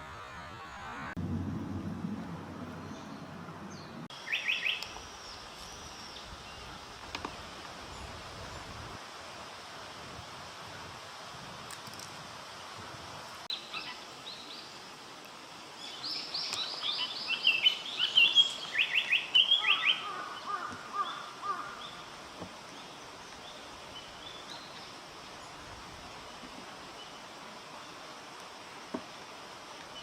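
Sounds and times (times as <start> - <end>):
steady background hiss: 0.0 - 30.0
songbird singing: 2.6 - 8.9, 15.8 - 28.1.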